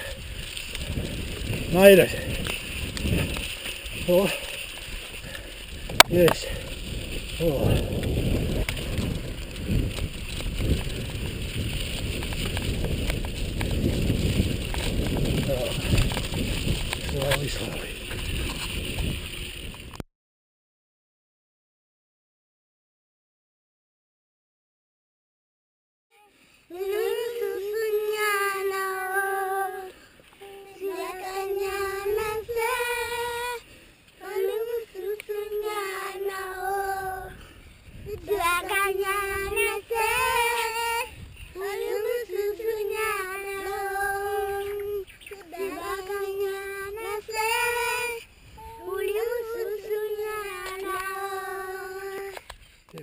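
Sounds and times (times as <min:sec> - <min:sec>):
bicycle drivetrain clicking: 0:00.0 - 0:20.0
wind rumble on microphone: 0:00.0 - 0:20.0, 0:26.7 - 0:53.0.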